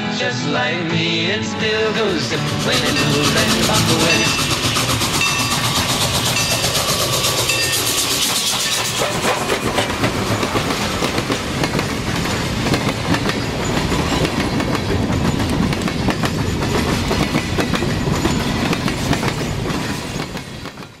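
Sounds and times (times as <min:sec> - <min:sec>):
train rumbling with wheel clicks: 0:01.8 - 0:21.0.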